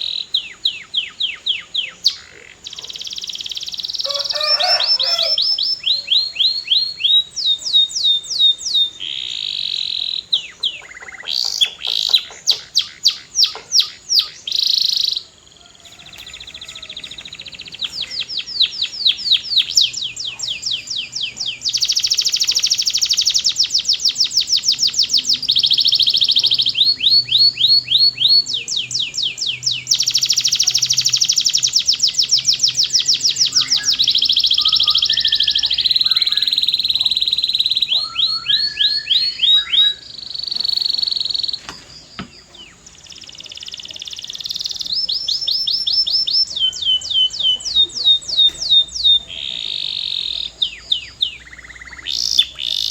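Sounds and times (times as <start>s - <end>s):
canary singing in trills: 0.0s - 52.9s.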